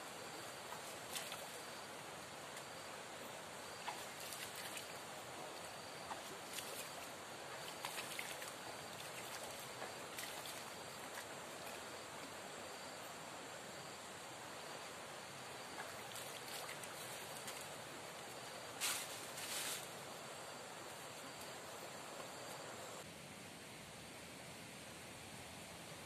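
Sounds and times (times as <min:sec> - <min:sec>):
river flowing: 0:00.0 - 0:23.0.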